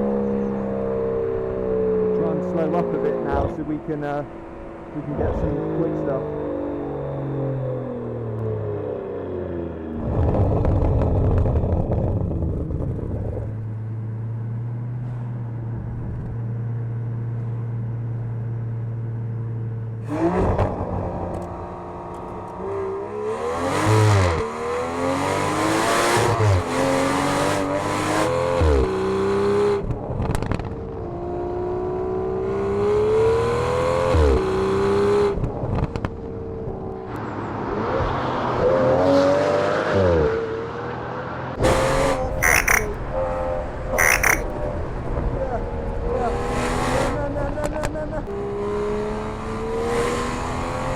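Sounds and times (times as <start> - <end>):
sports car engine accelerating: 0.0 - 50.9.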